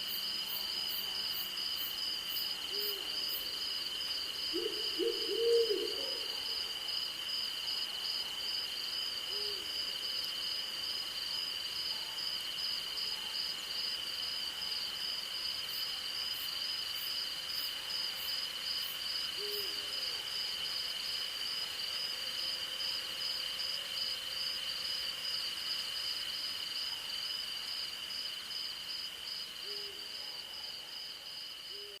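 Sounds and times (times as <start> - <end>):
insects and crickets trilling: 0.0 - 32.0
owl hooting: 4.5 - 6.4.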